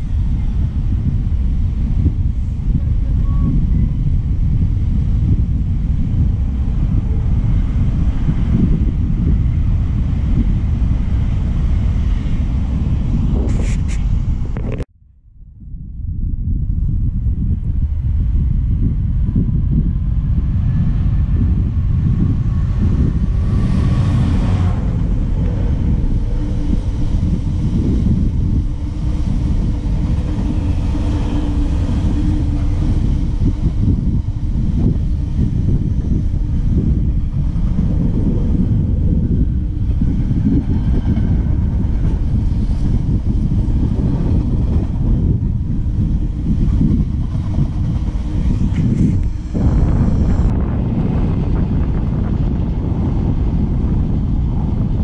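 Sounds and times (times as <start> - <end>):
train rumbling past: 0.0 - 14.6, 16.8 - 55.0
faint steady tones: 24.6 - 50.5.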